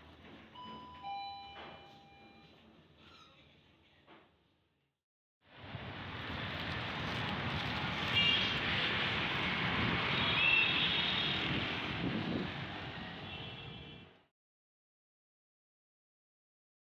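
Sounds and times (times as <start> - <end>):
traffic noise: 5.5 - 14.3
wind on microphone: 11.3 - 13.2.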